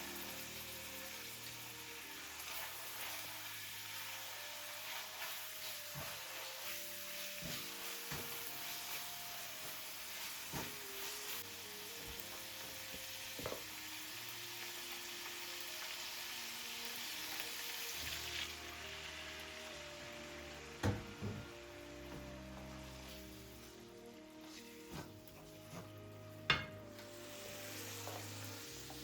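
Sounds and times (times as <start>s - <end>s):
food sizzling in a pan: 0.0s - 29.0s.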